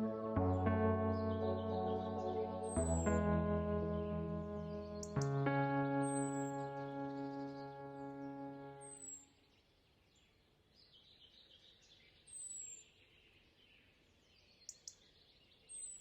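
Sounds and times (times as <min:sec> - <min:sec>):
held musical chord: 0:00.0 - 0:09.1
faint outdoor ambience: 0:00.0 - 0:09.3.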